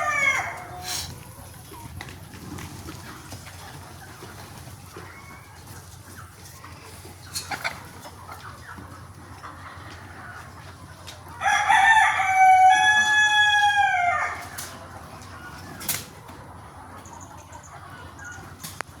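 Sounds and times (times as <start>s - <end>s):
rooster crowing: 0.0s - 0.9s, 11.4s - 14.5s
chickens clucking: 0.0s - 19.0s.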